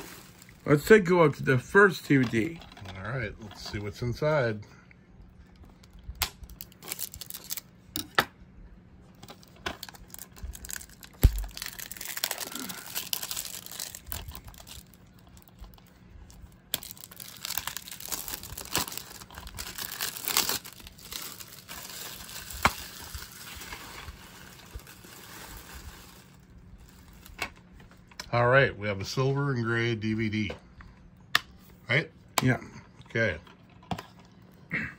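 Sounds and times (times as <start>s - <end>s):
plastic wrap crinkling and tearing: 0.0s - 1.4s, 5.8s - 7.7s, 9.2s - 27.6s.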